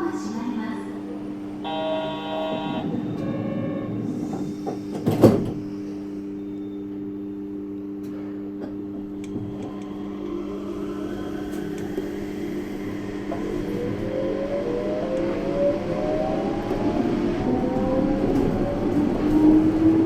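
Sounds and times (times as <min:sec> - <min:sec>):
train electrical hum: 0:00.0 - 0:20.0
train motor whine: 0:01.6 - 0:05.0
train doors shutting thud: 0:01.7 - 0:05.8.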